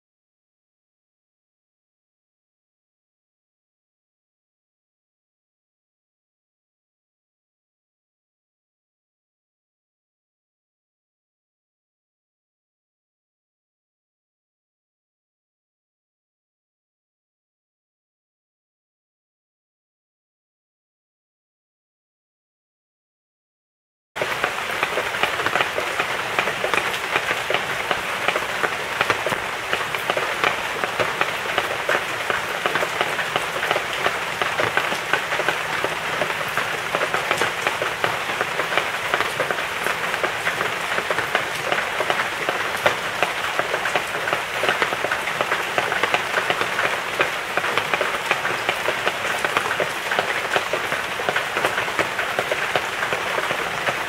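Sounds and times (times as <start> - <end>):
rain falling: 24.2 - 54.0.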